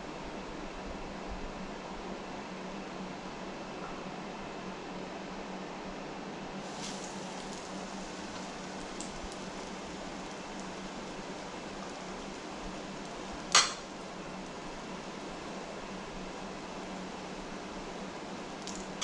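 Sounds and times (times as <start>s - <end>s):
food frying in hot oil: 6.6s - 19.0s.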